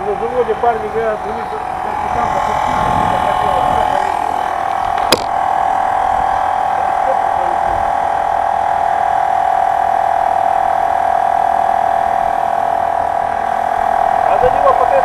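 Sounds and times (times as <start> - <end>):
loud steady hum: 0.0 - 15.0
sharp click: 4.9 - 5.4.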